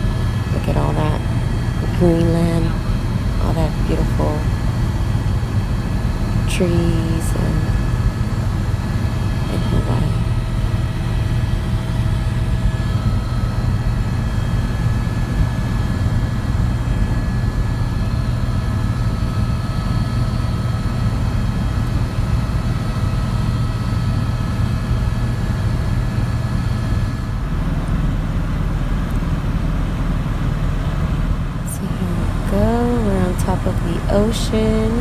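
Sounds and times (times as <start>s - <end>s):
whining tones: 0.0s - 18.6s, 31.6s - 35.0s
helicopter cabin drone: 0.0s - 35.0s.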